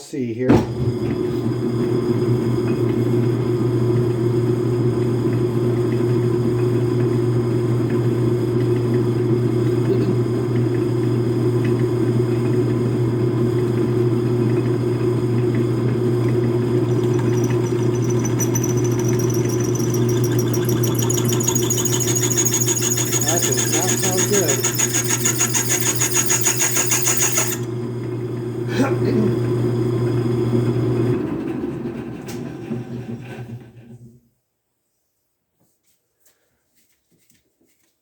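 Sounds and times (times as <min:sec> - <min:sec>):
metal lathe running: 0:15.9 - 0:27.8
drill squealing in metal: 0:16.7 - 0:27.7.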